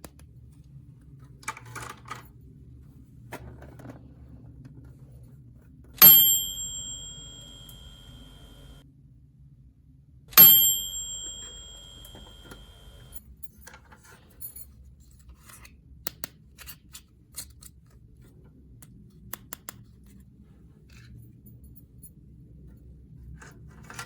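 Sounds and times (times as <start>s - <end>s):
toy bell ringing: 6.0s - 8.8s, 10.4s - 13.2s.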